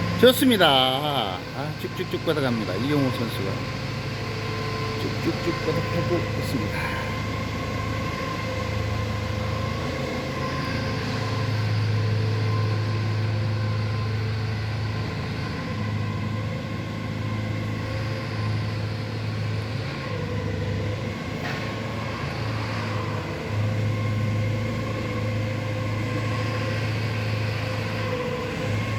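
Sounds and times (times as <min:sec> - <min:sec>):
truck engine humming: 0:00.0 - 0:09.6.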